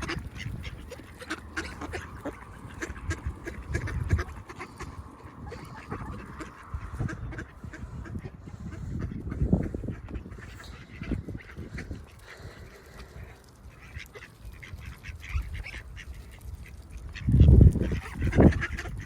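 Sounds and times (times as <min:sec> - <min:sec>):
ducks quacking: 0:00.0 - 0:19.0.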